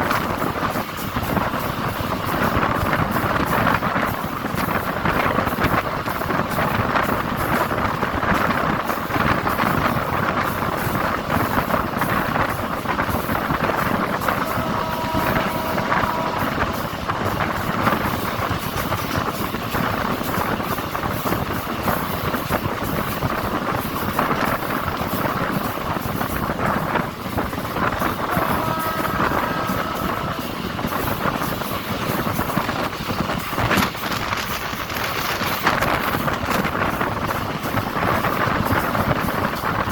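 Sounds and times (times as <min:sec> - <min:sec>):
train rumbling: 0:00.0 - 0:39.9
wind noise: 0:00.0 - 0:39.9
chord of steady tones: 0:13.7 - 0:18.4, 0:28.0 - 0:31.6.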